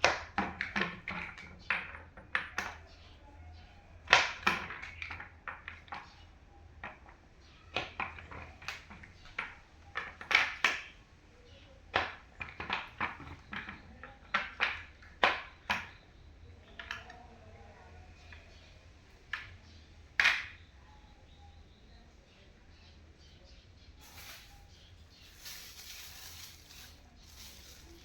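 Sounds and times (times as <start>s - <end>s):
chair parts knocking and clicking: 0.0s - 2.8s, 4.0s - 11.0s, 11.9s - 17.2s, 20.2s - 20.6s.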